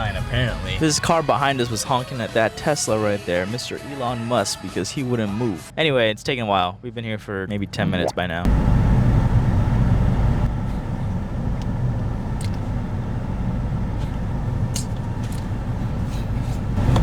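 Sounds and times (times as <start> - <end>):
car cabin rumble: 8.5 - 17.0.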